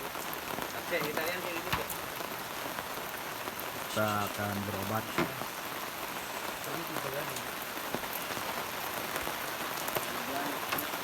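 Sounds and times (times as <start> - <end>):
rain pattering: 0.0 - 11.0.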